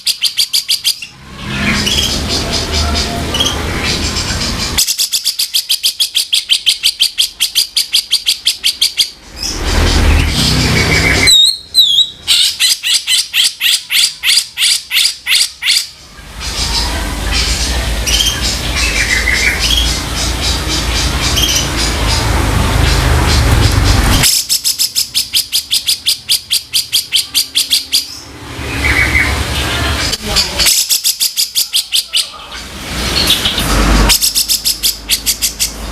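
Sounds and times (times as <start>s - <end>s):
bird giving harsh rapid calls: 0.0s - 29.4s
noisy chatter: 29.2s - 34.3s.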